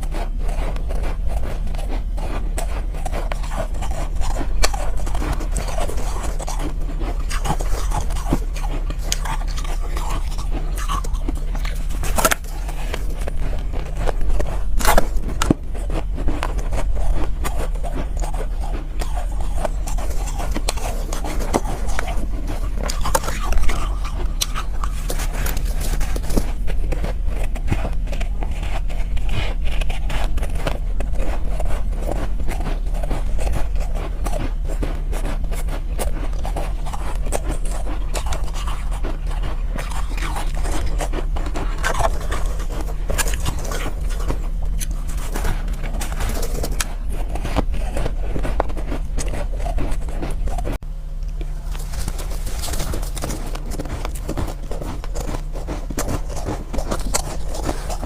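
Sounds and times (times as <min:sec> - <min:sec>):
steady low hum: 0:00.0 - 0:58.0
ice being crunched: 0:51.4 - 0:58.0.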